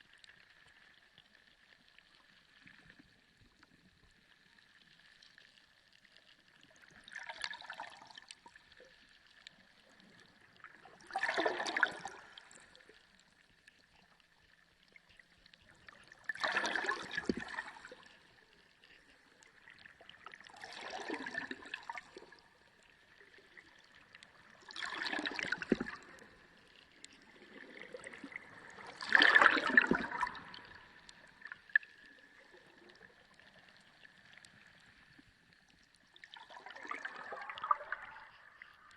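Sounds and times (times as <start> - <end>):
water gurgling and surging underwater: 0.0 - 38.9.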